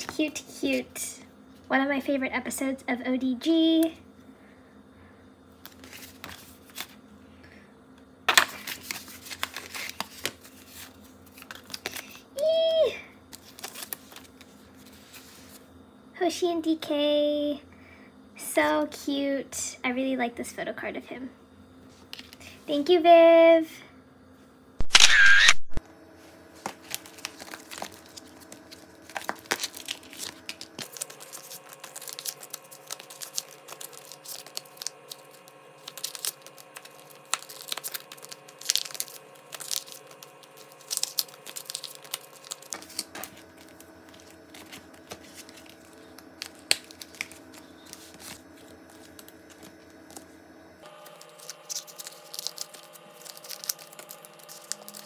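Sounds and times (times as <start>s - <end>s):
plastic sleeves crinkling: 8.3s - 12.2s, 13.3s - 15.6s, 26.6s - 55.0s.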